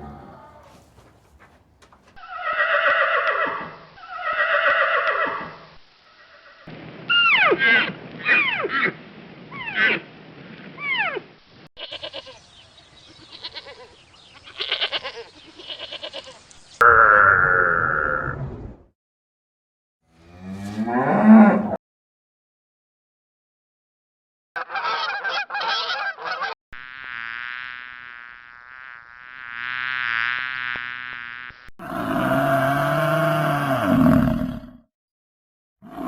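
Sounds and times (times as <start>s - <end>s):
cow mooing: 0.0s - 2.2s, 20.1s - 21.8s, 31.8s - 34.7s
goat bleating: 0.0s - 2.7s, 11.8s - 12.4s, 13.1s - 16.4s
short falling animal calls: 0.0s - 5.5s.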